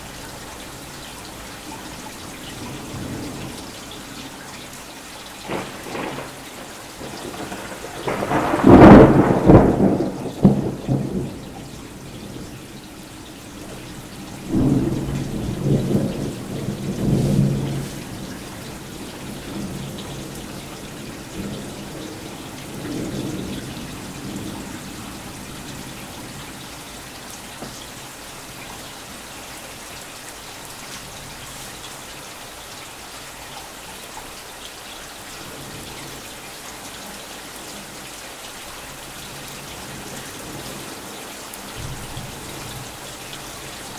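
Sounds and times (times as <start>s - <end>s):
steady rain falling: 0.0s - 43.9s
thunder crashing and rumbling: 5.5s - 12.5s.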